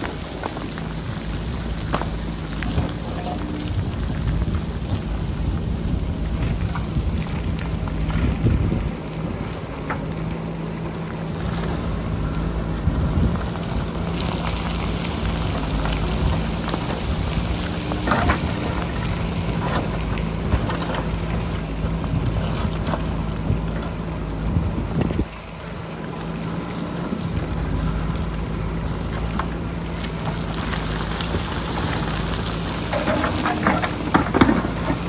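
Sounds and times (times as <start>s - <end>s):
bucket clanking against rock: 0.0s - 5.0s, 13.3s - 21.7s, 31.3s - 35.0s
diesel engine running: 0.0s - 35.0s
wind on microphone: 0.9s - 9.7s, 11.6s - 25.4s.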